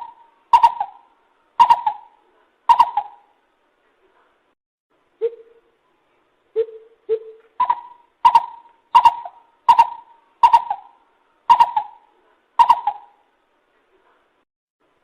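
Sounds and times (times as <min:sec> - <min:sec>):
coucal calling: 0:00.0 - 0:03.4, 0:06.6 - 0:13.2.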